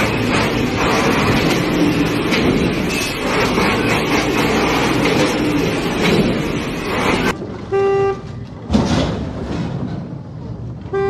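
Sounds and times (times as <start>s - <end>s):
road and traffic noise: 0.0s - 11.0s
car horn blast: 7.7s - 8.4s.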